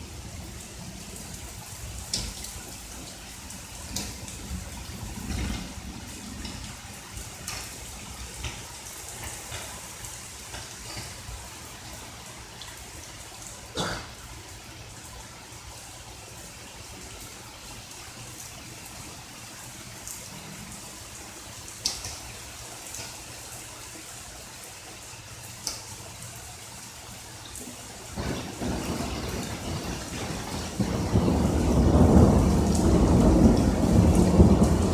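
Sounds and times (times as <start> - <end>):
light rain: 0.0 - 34.9
water trickling and dripping: 0.0 - 34.9
sharp loud drips: 26.8 - 34.9.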